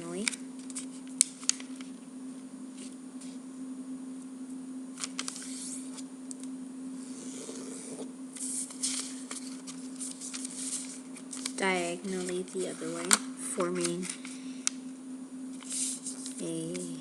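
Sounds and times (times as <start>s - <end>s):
steady low hum: 0.0s - 17.0s
crisp clicks of paper folding: 0.2s - 2.0s, 5.0s - 5.8s, 8.4s - 14.8s, 15.6s - 17.0s
paper rustling and crinkling: 5.0s - 6.0s, 8.4s - 14.4s, 15.6s - 17.0s.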